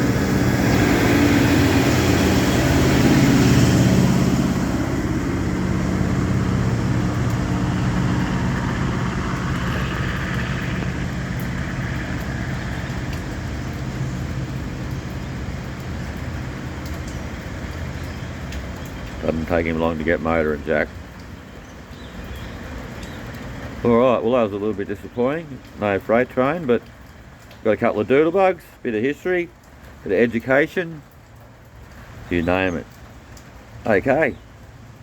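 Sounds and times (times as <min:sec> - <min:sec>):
diesel train engine drone: 0:00.0 - 0:20.9.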